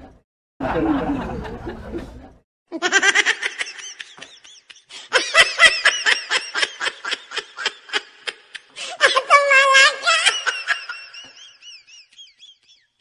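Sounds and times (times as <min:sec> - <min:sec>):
high-pitched laugh: 0:02.7 - 0:13.0.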